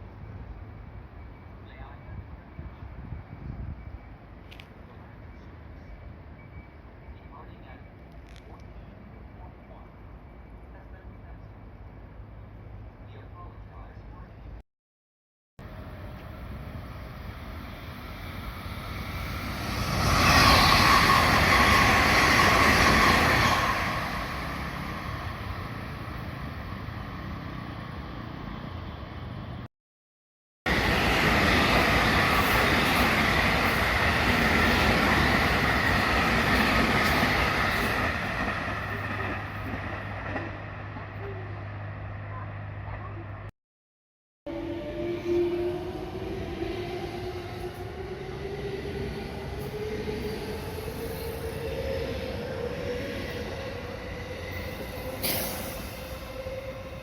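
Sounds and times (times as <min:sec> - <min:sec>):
wind: 0:00.0 - 0:14.6, 0:15.6 - 0:29.7, 0:30.6 - 0:43.5, 0:44.4 - 0:57.0
electric train passing: 0:15.6 - 0:29.7, 0:30.7 - 0:43.0, 0:44.5 - 0:57.0.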